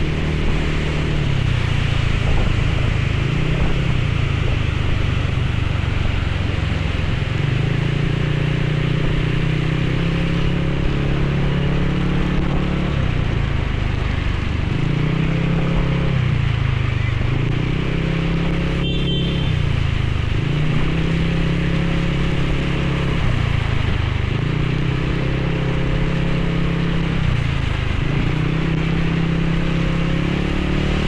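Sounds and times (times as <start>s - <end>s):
wind and rain hiss: 0.0s - 7.8s
motorcycle engine running: 0.0s - 31.0s.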